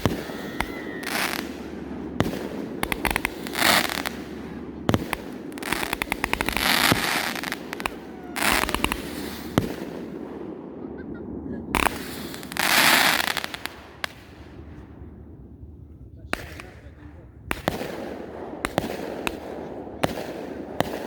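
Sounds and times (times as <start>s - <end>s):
hissing firework lifts: 0.0s - 10.3s, 11.7s - 14.8s
rapid firework crackling: 0.0s - 14.8s, 16.2s - 21.0s
firework shots and bursts: 0.0s - 21.0s.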